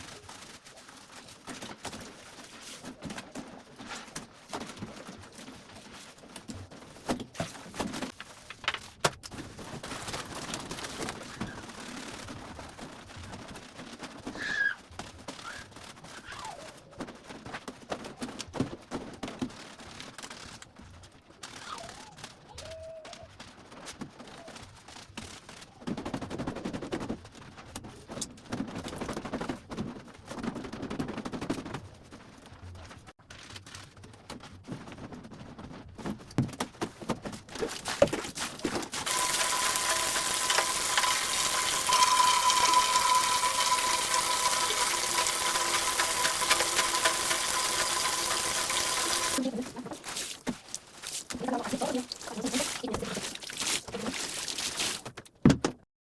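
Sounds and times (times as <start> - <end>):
scrubbing wet fabric: 37.6 - 55.1
tap water running: 38.7 - 55.0.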